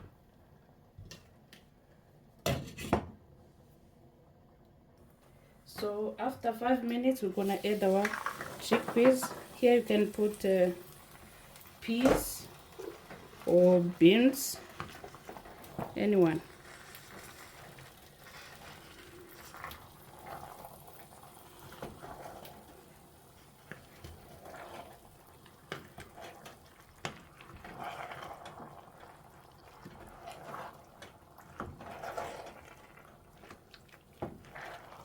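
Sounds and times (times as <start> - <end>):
liquid sloshing in a pot: 12.5 - 35.0.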